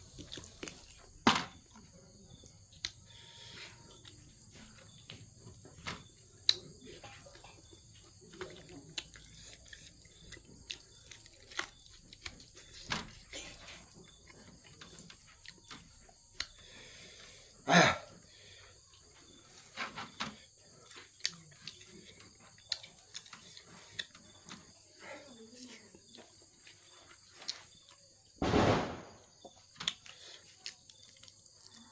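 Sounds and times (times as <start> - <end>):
person chewing and eating: 0.0 - 25.0, 26.0 - 28.1, 29.3 - 31.9
crickets chirring: 0.0 - 31.9.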